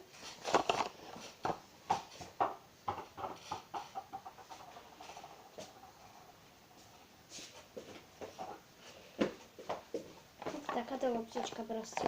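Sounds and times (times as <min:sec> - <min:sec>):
toy ball bouncing on hard floor: 0:01.4 - 0:05.8.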